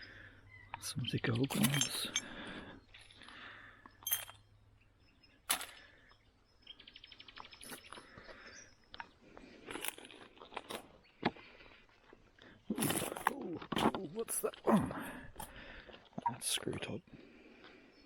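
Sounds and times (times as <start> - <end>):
glass and stones clicking: 1.4 - 3.3, 3.9 - 4.4.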